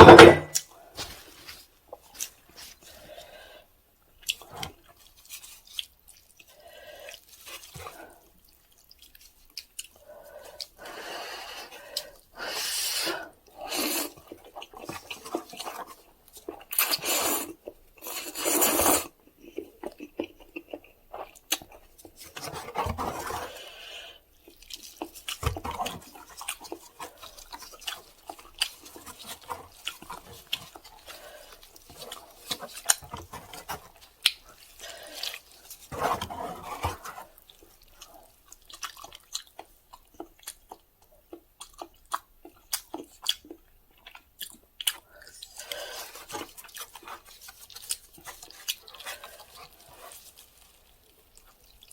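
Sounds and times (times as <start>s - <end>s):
wet chewing: 4.2s - 12.6s, 13.2s - 51.9s
slurping noodles: 10.5s - 15.9s, 16.6s - 19.2s, 22.3s - 24.2s, 45.4s - 51.6s.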